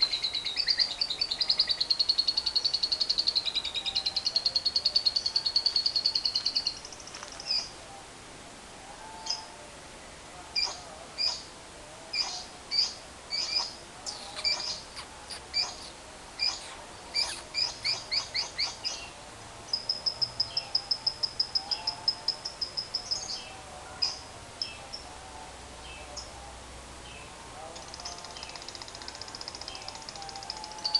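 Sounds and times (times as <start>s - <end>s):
lovebird sharp chirps: 13.4s - 14.8s, 15.6s - 19.0s
lovebird rattling chatter: 27.8s - 30.9s.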